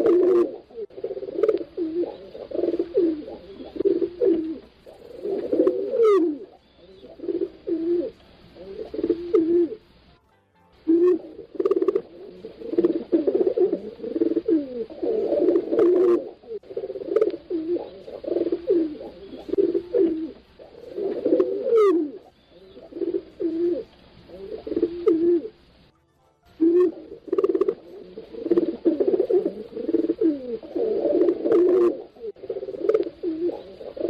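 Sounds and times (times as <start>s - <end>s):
pigeons cooing: 0.0s - 10.0s, 10.9s - 25.9s, 26.6s - 34.0s.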